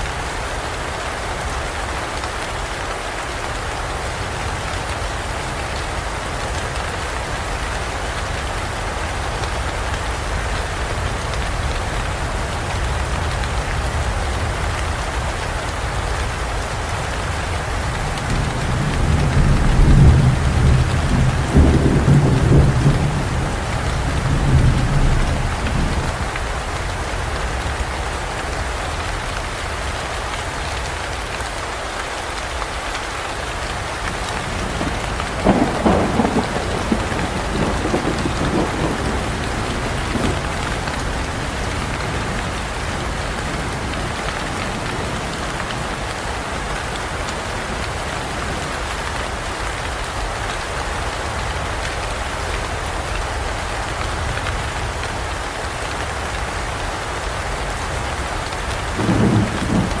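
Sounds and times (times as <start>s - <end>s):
heavy rain falling: 0.0s - 60.0s
low rolling thunder: 10.9s - 27.4s, 34.1s - 45.5s, 58.6s - 60.0s.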